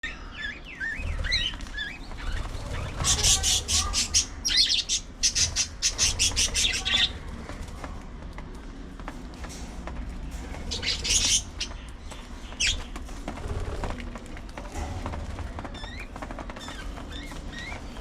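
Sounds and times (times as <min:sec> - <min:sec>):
budgies chirping and warbling: 0:00.0 - 0:07.2, 0:10.6 - 0:13.2, 0:15.7 - 0:18.0
harsh scratchy bird sounds: 0:00.1 - 0:08.1, 0:09.8 - 0:18.0.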